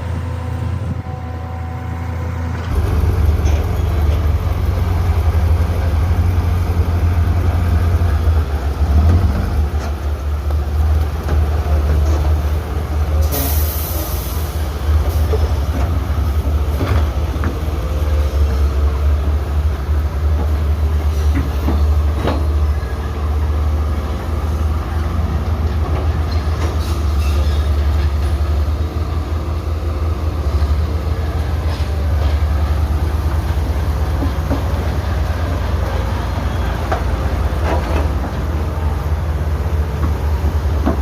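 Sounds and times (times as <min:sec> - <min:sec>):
heavy machinery engine rumble: 0:00.0 - 0:41.0
machinery clanks and knocks: 0:02.6 - 0:06.8, 0:15.0 - 0:17.7, 0:21.2 - 0:22.8, 0:31.6 - 0:35.2, 0:35.8 - 0:38.6, 0:39.9 - 0:41.0.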